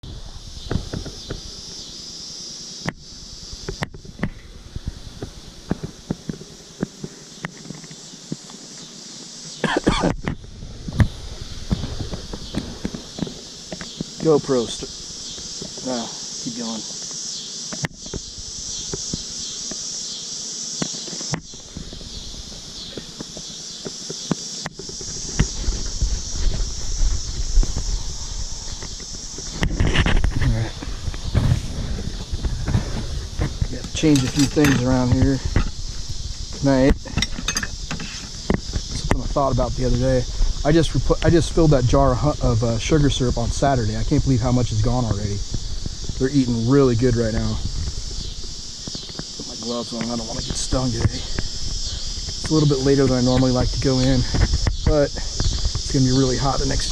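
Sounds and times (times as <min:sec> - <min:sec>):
insects chirring: 0:00.0 - 0:56.9
low rumbling bumps on microphone: 0:25.1 - 0:34.2.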